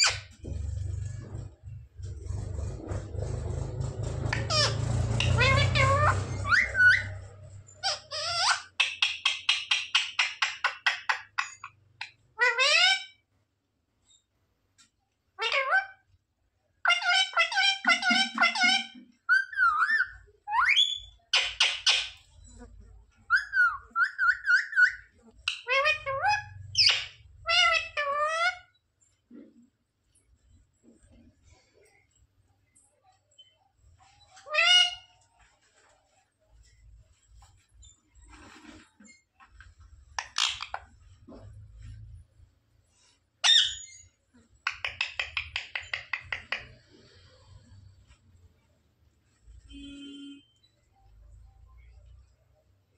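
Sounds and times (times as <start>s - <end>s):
parrot screeching: 4.3s - 8.8s, 12.4s - 13.2s, 15.4s - 16.0s, 16.8s - 22.2s, 23.3s - 28.7s, 34.4s - 35.2s, 43.4s - 44.0s.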